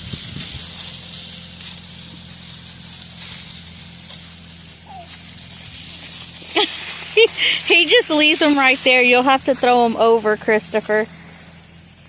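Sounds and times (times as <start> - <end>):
wind on microphone: 0.0 - 0.7
tractor engine running: 0.0 - 12.0.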